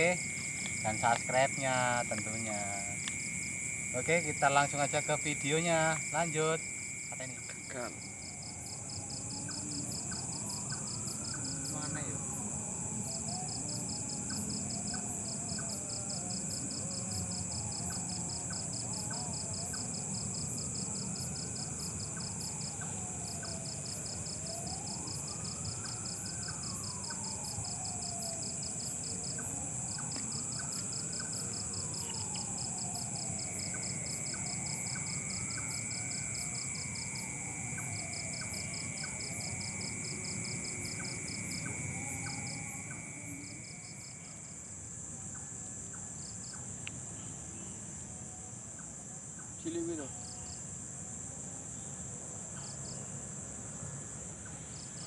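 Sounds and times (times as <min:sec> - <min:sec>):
crickets chirping: 0:00.0 - 0:55.0
slow wailing tone: 0:07.6 - 0:44.6.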